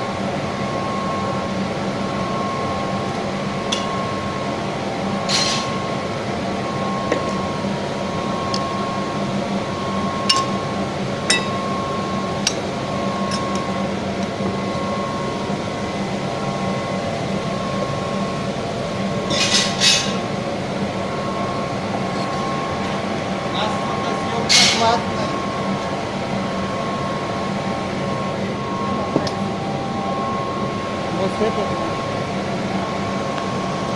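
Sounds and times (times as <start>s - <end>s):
machine hum: 0.0s - 33.9s
glass clinking: 10.3s - 10.6s, 11.3s - 11.6s
faint tone: 26.6s - 33.9s.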